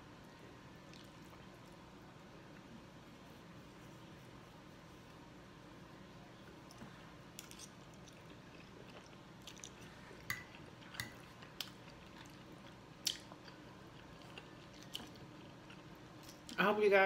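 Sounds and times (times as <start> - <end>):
chewing spaghetti: 0.8 - 2.7, 6.6 - 16.6.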